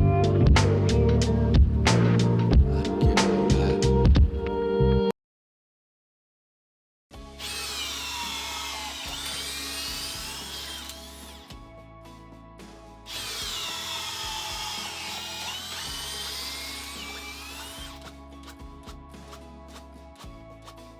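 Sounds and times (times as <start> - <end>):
cordless drill motor whining: 7.3 - 11.6, 13.1 - 18.6.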